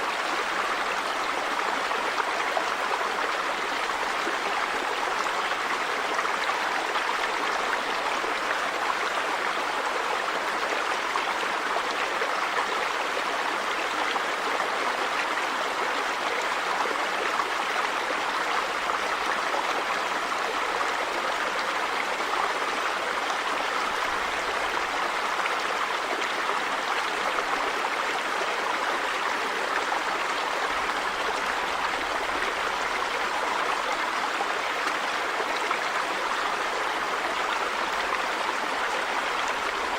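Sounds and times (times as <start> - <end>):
river water running over rocks: 0.0 - 39.9.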